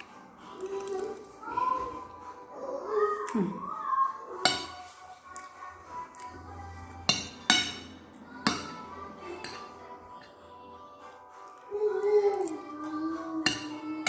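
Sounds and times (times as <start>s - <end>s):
cartoon music from television: 0.0s - 14.0s
cutlery clinking against plate: 4.4s - 5.5s, 7.1s - 10.4s, 13.4s - 14.0s.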